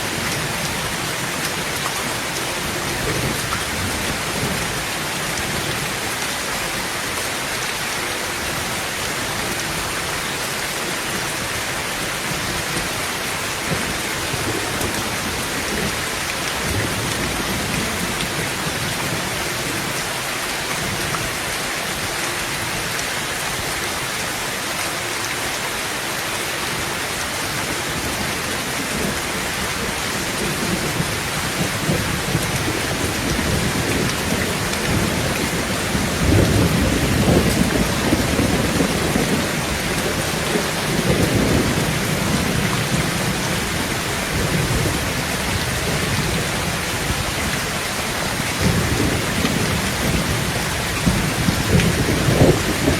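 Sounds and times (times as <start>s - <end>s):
heavy rain on a tin roof: 0.0s - 52.9s
rolling thunder: 29.9s - 47.6s, 48.5s - 52.9s.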